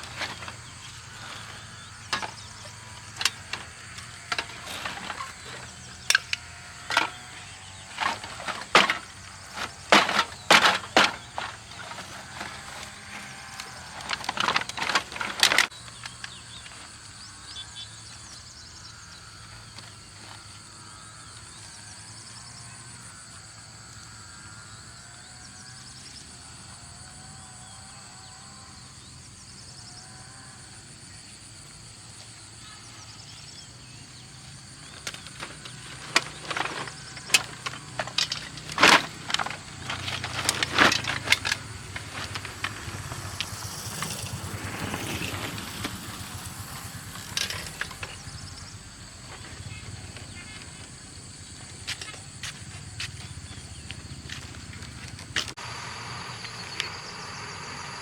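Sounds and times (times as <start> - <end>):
scrap metal knocking and cracking: 0.0 - 16.4, 34.8 - 48.7
outdoor background noise: 0.0 - 58.0.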